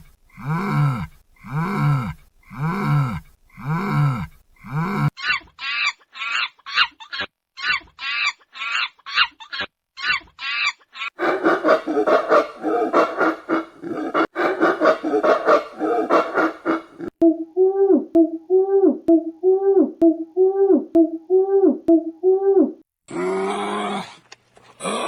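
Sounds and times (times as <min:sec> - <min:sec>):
poultry calling: 0:11.2 - 0:17.1.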